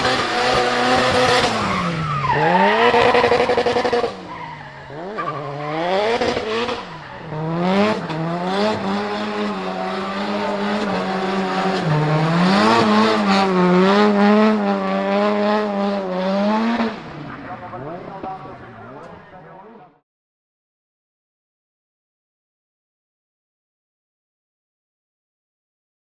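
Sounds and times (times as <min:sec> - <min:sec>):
car engine at high revs: 0:00.0 - 0:19.7.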